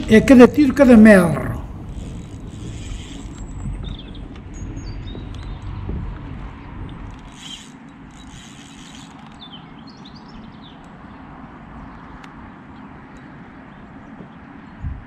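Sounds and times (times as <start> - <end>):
low outdoor rumble: 0.0 - 15.0
small bird chirping: 7.3 - 11.0.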